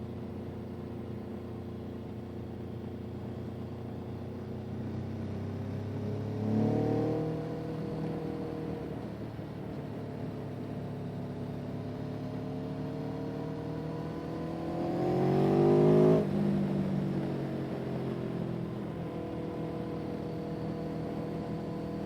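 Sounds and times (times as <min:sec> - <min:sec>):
engine revving: 0:06.2 - 0:08.6, 0:13.3 - 0:16.4.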